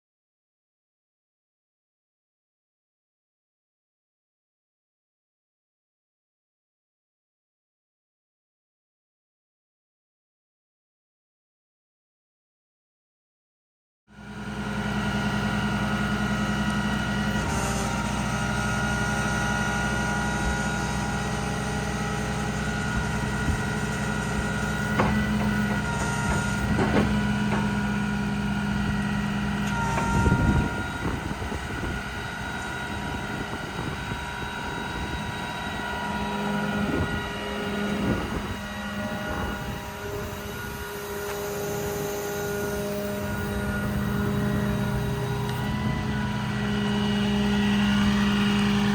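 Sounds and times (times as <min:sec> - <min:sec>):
diesel truck engine running: 0:14.2 - 0:48.9.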